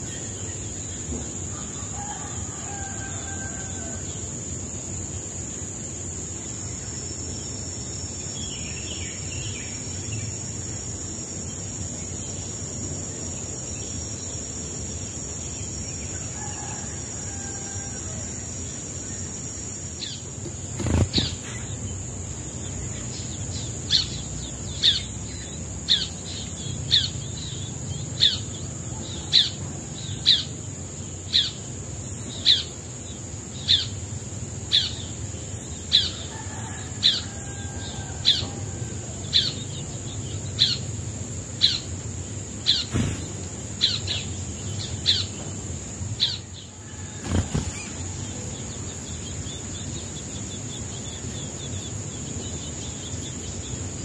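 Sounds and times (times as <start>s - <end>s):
high-pitched insect drone: 0.0s - 54.0s
bird falling chirp: 20.6s - 21.6s, 47.1s - 48.2s.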